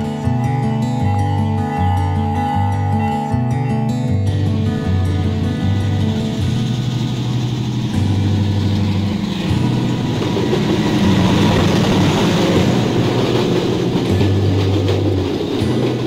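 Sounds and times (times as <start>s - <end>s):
diesel locomotive engine: 0.0s - 16.0s
train wagons rolling on rails: 4.5s - 16.0s.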